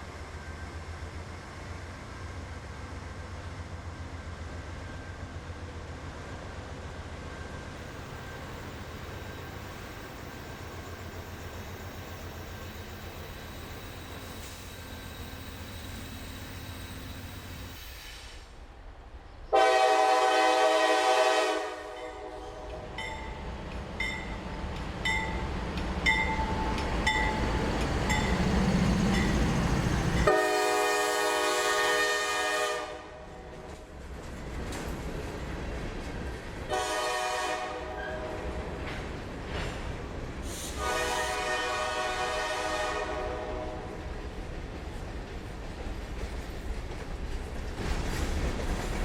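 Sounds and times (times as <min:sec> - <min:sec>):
locomotive air horn blasts: 0:19.5 - 0:22.5, 0:30.3 - 0:33.3, 0:36.7 - 0:38.3, 0:40.7 - 0:43.9.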